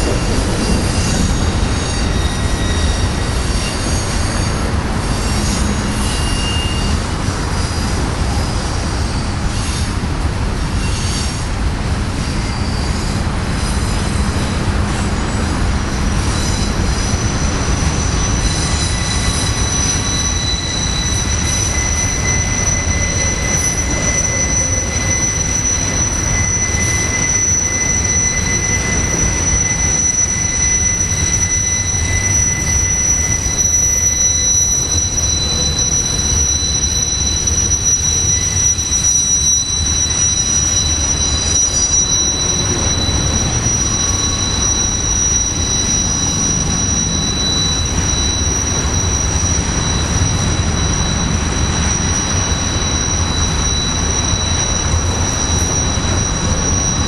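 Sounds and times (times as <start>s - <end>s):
freight train rumble: 0.0s - 57.0s
high-pitched wheel squeal: 0.0s - 57.0s
lower squeal tone: 0.0s - 57.0s.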